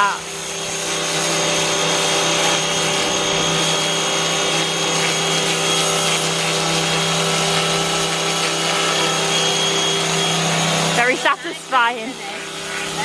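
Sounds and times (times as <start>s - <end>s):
water spray hissing: 0.0s - 10.1s
pressure washer motor whining: 0.0s - 13.0s.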